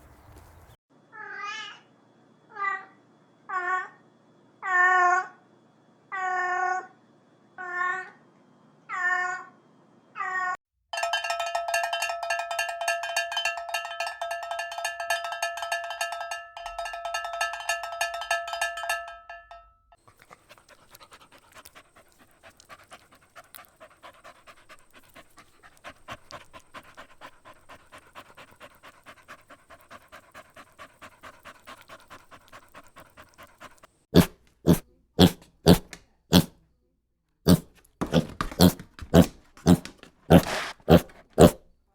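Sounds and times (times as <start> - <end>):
dog panting: 20.1 - 36.5, 37.5 - 41.6.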